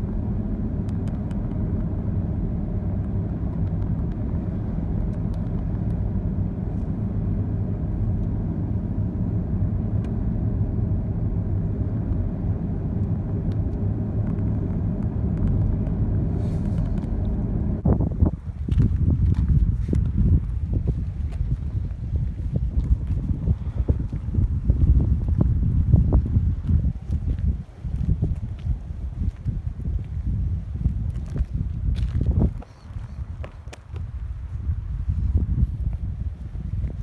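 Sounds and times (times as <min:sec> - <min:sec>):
car engine and road noise: 0:00.0 - 0:37.0.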